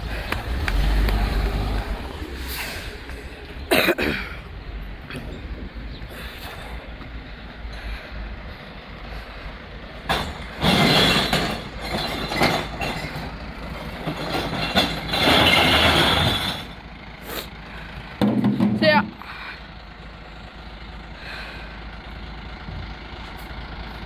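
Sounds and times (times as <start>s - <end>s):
truck engine running: 0.0s - 24.0s
glass bottles crashing: 10.2s - 13.3s, 14.3s - 16.7s.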